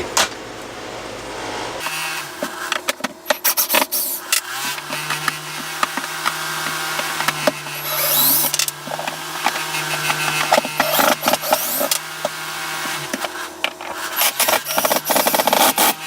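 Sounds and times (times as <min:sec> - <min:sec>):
squeaky scraping: 0:07.0 - 0:12.0.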